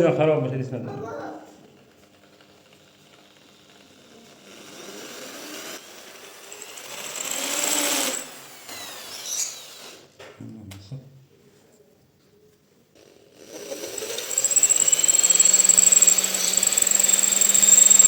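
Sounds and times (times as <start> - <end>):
small power tool motor running: 1.8 - 10.1, 13.0 - 18.0.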